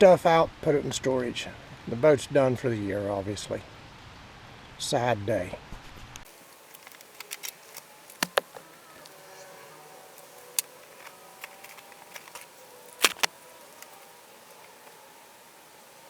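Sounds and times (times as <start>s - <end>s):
knocks and clicks of gear handled: 6.3s - 15.1s
light rain hiss: 6.3s - 16.0s.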